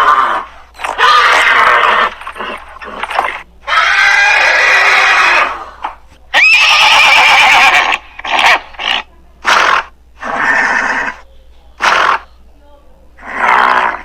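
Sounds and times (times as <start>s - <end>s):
horse whinnying: 0.0s - 5.7s, 6.3s - 11.2s.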